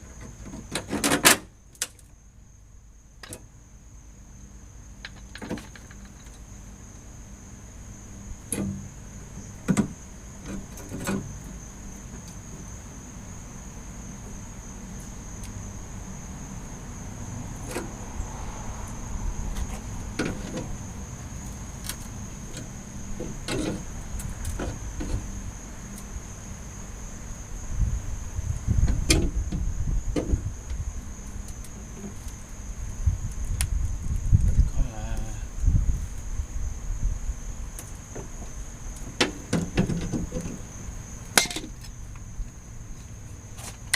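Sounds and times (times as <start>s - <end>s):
sharp clicks and knocks: 5.0s - 6.4s.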